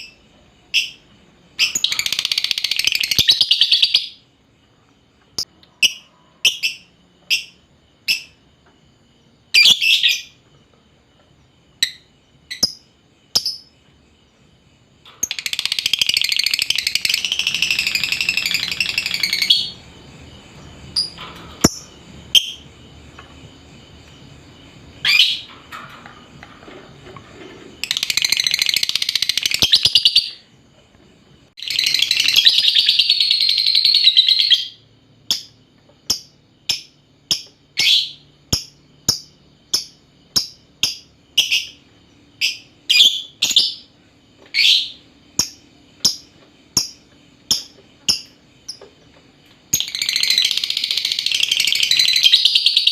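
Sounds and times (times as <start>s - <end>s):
bird chirps: 0.0s - 4.3s, 5.4s - 8.4s, 15.1s - 20.0s, 25.0s - 25.5s, 27.8s - 30.5s, 31.6s - 48.9s, 49.7s - 52.9s
shrill chattering bird trill: 15.2s - 19.8s.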